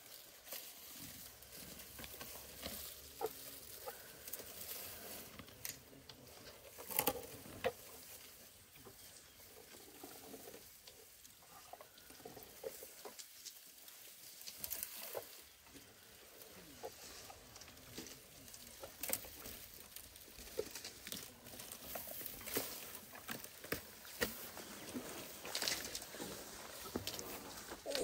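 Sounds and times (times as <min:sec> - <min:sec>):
dry grass and brush rustling: 0:00.0 - 0:28.0.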